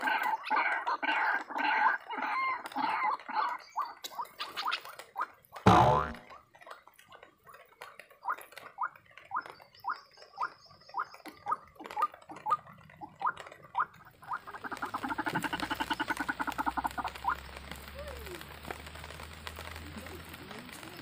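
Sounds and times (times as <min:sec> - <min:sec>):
steady hiss: 0:14.0 - 0:21.0.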